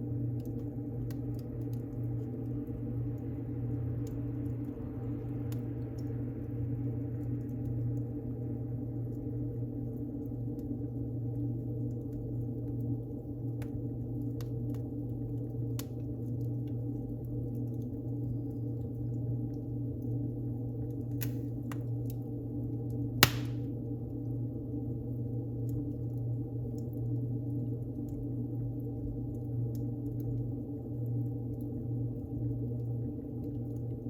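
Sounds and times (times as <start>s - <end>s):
wood fire crackling: 0.0s - 34.0s
loud pop from fire: 21.2s - 21.8s, 23.2s - 23.7s.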